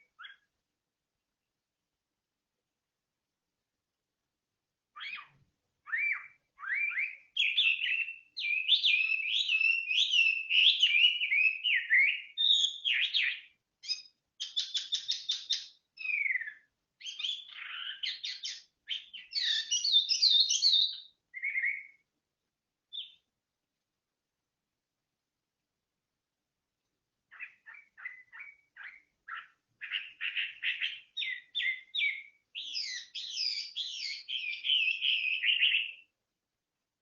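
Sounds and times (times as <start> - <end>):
songbird singing whistled phrases: 0.0 - 0.5, 4.9 - 22.1, 22.9 - 23.3, 27.3 - 36.1.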